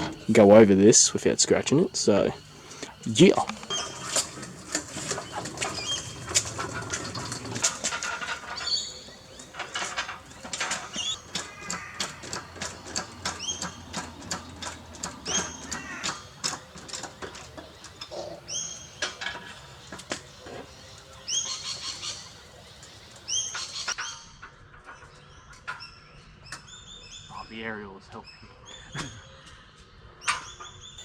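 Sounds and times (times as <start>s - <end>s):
short high squeaks: 1.9s - 24.0s
hoist chain metallic clicking: 2.0s - 23.9s.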